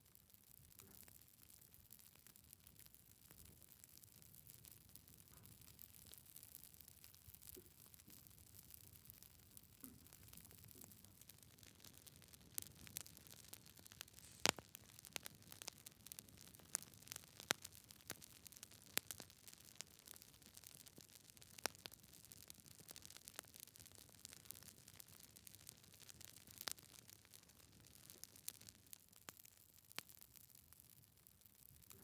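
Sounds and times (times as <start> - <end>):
wood fire crackling and popping: 0.2 - 32.0
fire hiss: 14.0 - 16.3.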